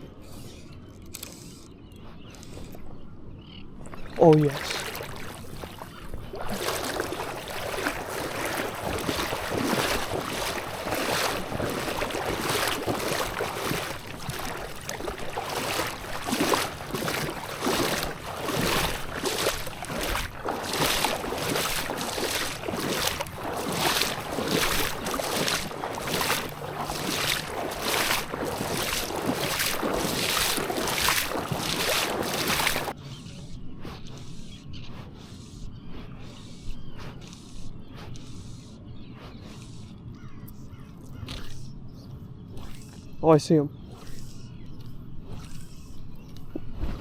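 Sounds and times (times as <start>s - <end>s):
water slapping against boat hull: 3.8s - 33.0s.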